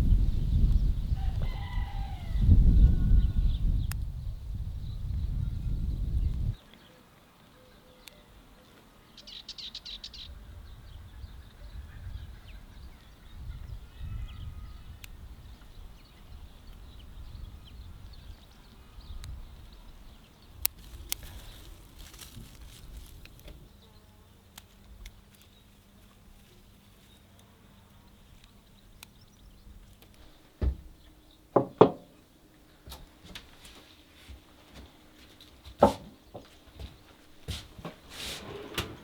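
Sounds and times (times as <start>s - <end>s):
low wind-like rumble: 0.0s - 6.6s, 10.2s - 23.8s
loud knocks: 30.6s - 30.9s, 31.6s - 32.1s, 35.8s - 36.5s.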